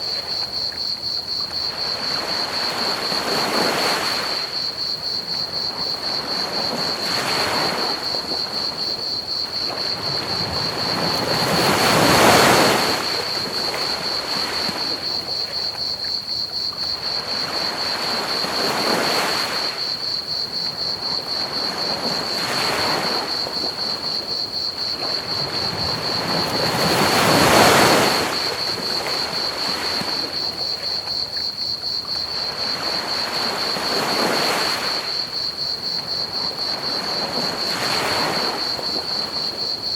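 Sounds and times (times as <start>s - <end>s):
crickets chirping: 0.0s - 39.9s
ocean waves breaking on beach: 1.6s - 15.4s, 16.9s - 31.0s, 32.2s - 39.9s.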